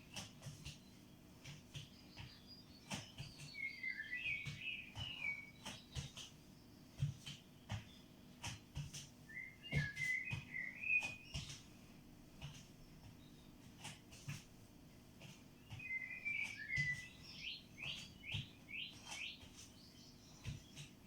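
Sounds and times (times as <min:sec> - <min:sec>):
footsteps on floor: 0:00.2 - 0:21.0
small bird chirping and warbling: 0:01.8 - 0:06.2, 0:09.3 - 0:11.6, 0:15.6 - 0:20.8.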